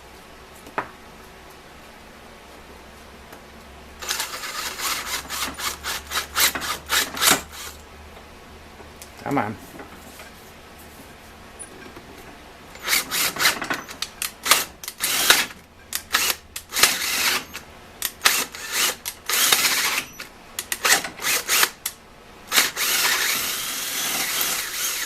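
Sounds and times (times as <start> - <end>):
electric drill in short bursts: 4.0 - 7.8, 12.8 - 21.8, 22.5 - 25.0.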